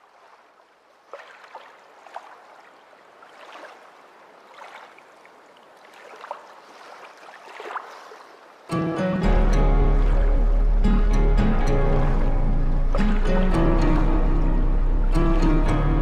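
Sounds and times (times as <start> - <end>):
water sloshing and gurgling: 0.0 - 16.0.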